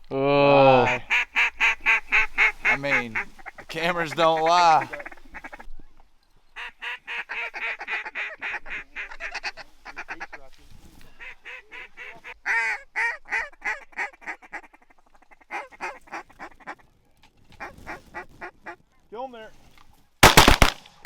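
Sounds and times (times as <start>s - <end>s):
geese honking: 0.8s - 5.7s, 6.6s - 10.5s, 11.1s - 16.8s.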